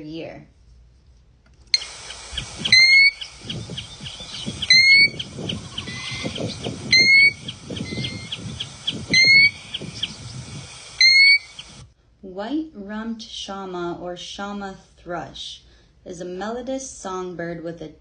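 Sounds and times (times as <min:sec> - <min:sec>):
birds chirping: 0:01.8 - 0:11.8
plover rising whistles: 0:01.8 - 0:11.8.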